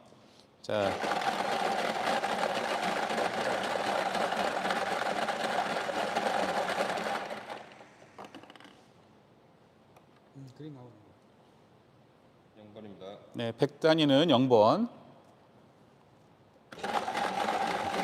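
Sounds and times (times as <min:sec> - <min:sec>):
lottery balls rattling in machine: 0:00.8 - 0:08.7, 0:16.7 - 0:18.0.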